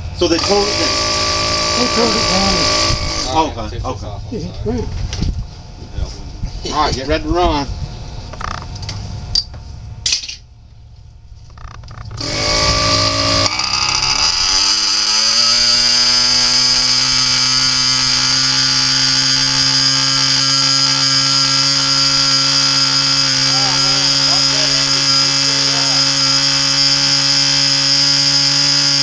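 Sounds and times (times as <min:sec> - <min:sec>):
model boat engines buzzing: 0:00.0 - 0:03.7, 0:11.8 - 0:29.0.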